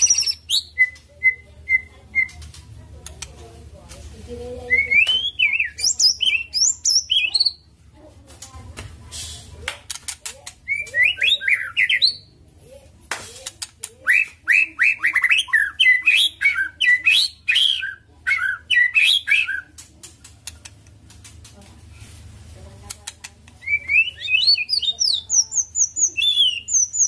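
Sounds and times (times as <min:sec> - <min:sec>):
bird singing whistled phrases: 0:00.0 - 0:02.3, 0:04.7 - 0:07.6, 0:10.7 - 0:12.2, 0:14.1 - 0:19.7, 0:23.6 - 0:27.0
sharp clicks: 0:09.7 - 0:10.6, 0:19.7 - 0:21.6.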